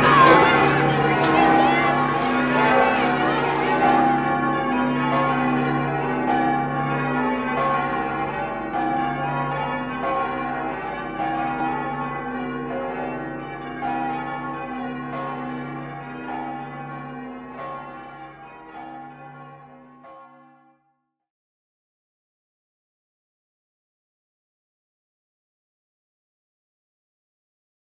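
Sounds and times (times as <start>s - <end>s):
church bells ringing: 0.0s - 20.6s.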